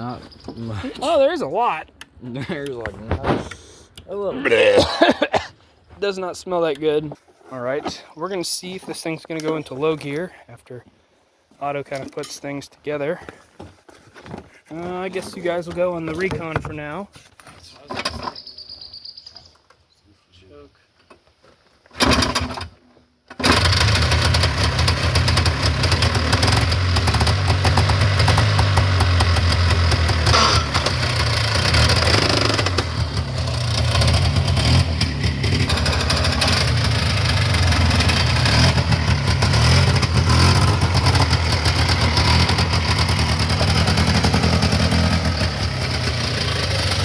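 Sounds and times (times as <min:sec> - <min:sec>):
atv engine running: 0:23.4 - 0:47.0
rapid drivetrain clattering: 0:23.4 - 0:47.0.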